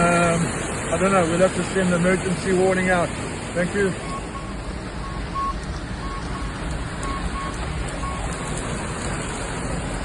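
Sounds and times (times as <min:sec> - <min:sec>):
floodwater rushing: 0:00.0 - 0:10.0
electronic warning beeps: 0:04.0 - 0:08.3.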